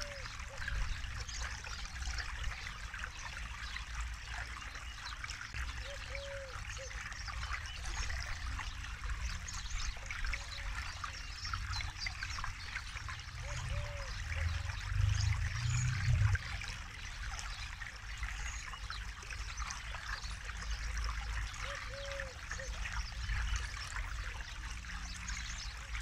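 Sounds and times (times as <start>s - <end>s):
river flowing over stones: 0.0s - 26.0s
bird calling: 5.8s - 7.0s
low rumble: 14.3s - 16.6s.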